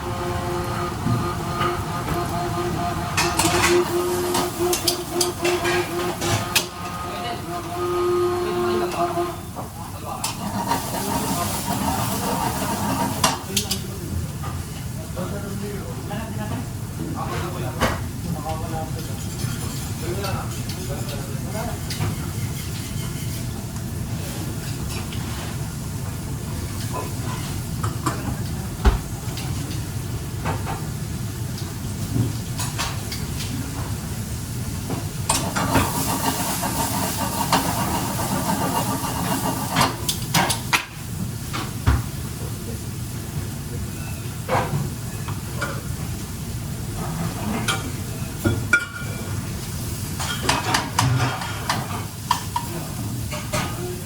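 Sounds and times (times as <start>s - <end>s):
food sizzling in a pan: 10.2s - 13.5s, 32.0s - 47.0s
meat sizzling in a pan: 10.4s - 13.3s, 35.4s - 40.8s
utensil scraping a pan: 21.7s - 23.6s, 35.4s - 40.0s.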